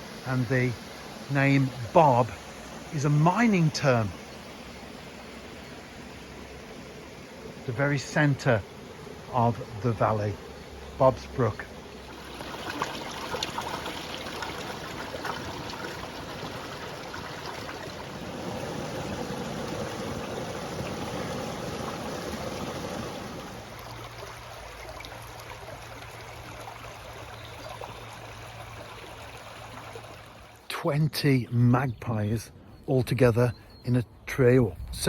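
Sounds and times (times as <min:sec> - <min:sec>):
brook water rushing: 0:00.0 - 0:30.7.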